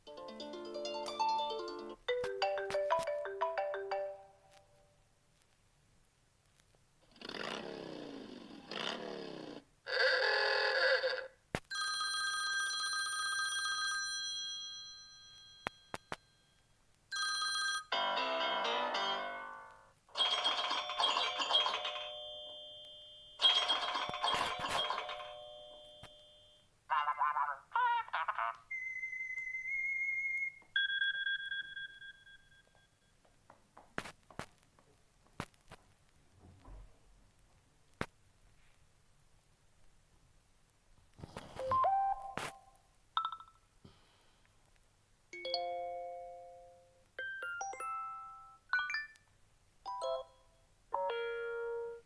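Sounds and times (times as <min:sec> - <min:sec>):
mobile phone ringtone: 0:00.5 - 0:04.4, 0:11.7 - 0:26.6, 0:28.7 - 0:33.0
phone chime: 0:20.2 - 0:26.6, 0:28.7 - 0:33.0
bell-like ringing tone: 0:20.6 - 0:26.6, 0:29.7 - 0:33.1.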